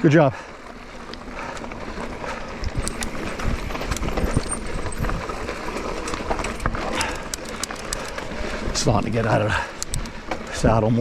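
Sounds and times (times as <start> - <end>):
tyre noise on dirt trail: 0.0 - 11.0
bike knocks and rattles: 2.3 - 8.4.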